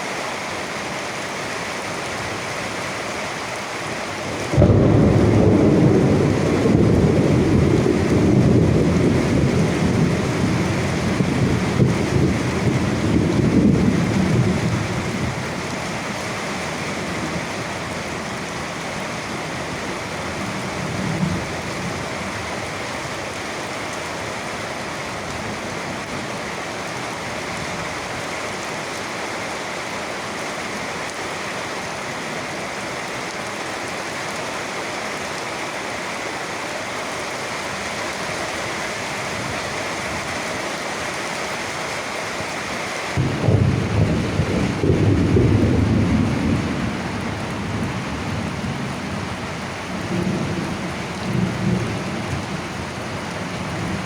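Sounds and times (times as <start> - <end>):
rain falling: 0.0 - 54.0
thunder rumbling: 4.4 - 16.1, 43.2 - 53.0.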